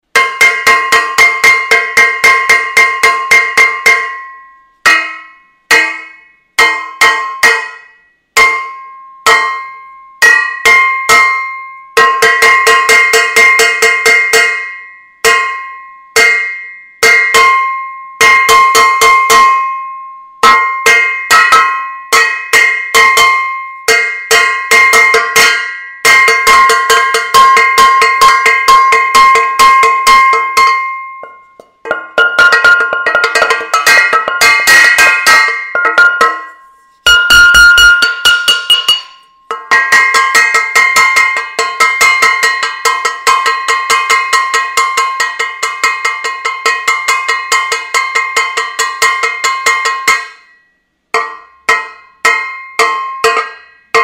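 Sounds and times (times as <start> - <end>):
metal saucepan clanging: 23.9 - 44.3.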